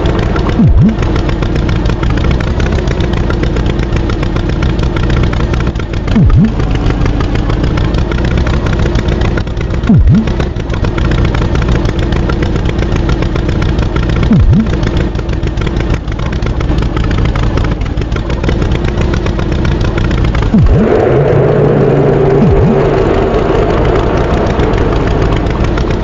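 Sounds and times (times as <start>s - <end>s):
cartoon tractor engine: 0.0s - 26.0s
swooping sounds: 0.5s - 1.2s, 6.2s - 6.6s, 9.9s - 10.4s, 14.3s - 14.7s, 20.5s - 25.8s.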